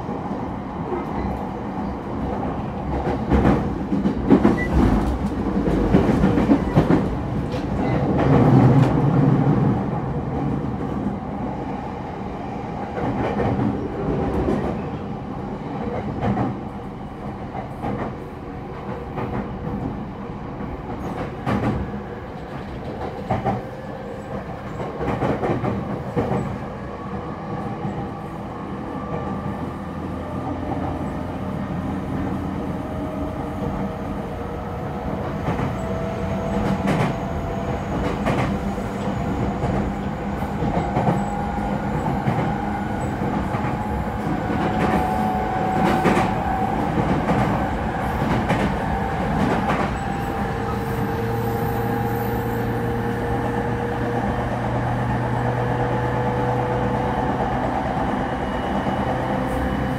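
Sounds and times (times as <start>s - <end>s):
train interior rumble: 0.0s - 59.9s.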